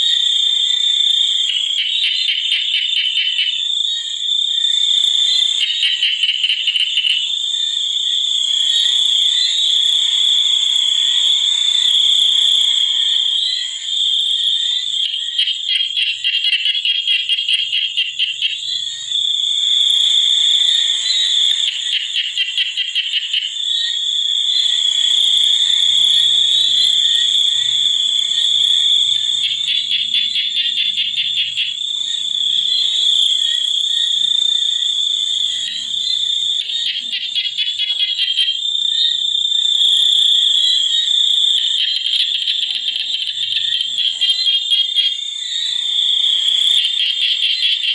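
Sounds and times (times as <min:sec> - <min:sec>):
high-pitched insect trill: 0:00.0 - 0:47.9
faint low frog croaks: 0:01.2 - 0:03.7, 0:14.8 - 0:19.0, 0:25.4 - 0:34.0, 0:34.6 - 0:39.3, 0:39.9 - 0:47.9
rapid pulsed calls: 0:26.1 - 0:45.2.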